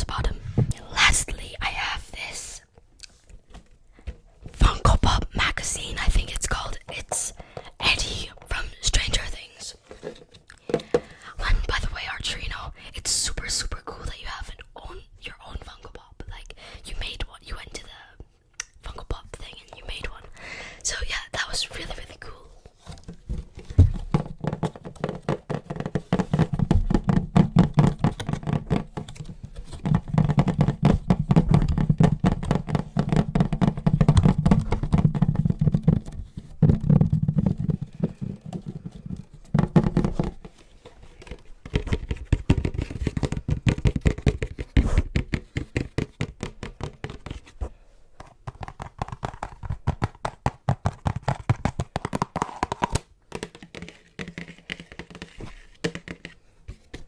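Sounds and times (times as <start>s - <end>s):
fingers tapping on object: 41.2s - 47.5s.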